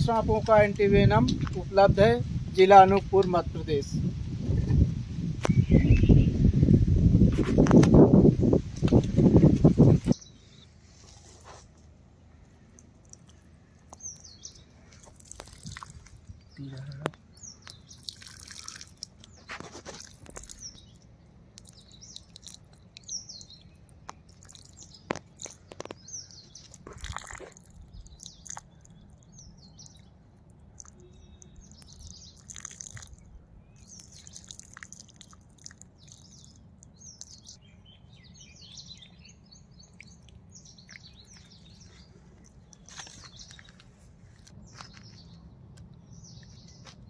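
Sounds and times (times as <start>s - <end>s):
birds chirping: 0.0s - 7.0s, 7.6s - 11.6s, 12.2s - 47.0s
faint clicks and rustles: 18.7s - 31.0s, 39.9s - 47.0s.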